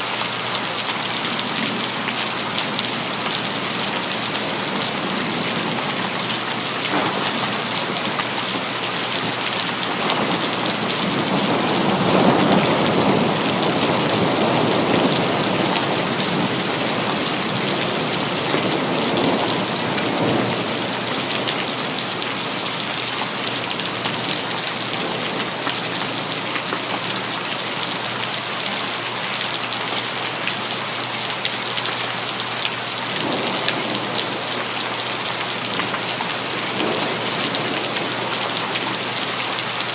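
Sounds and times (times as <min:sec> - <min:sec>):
heavy rain on city surfaces: 0:00.0 - 0:39.9
thunder rumbling: 0:01.5 - 0:26.6, 0:33.1 - 0:39.2.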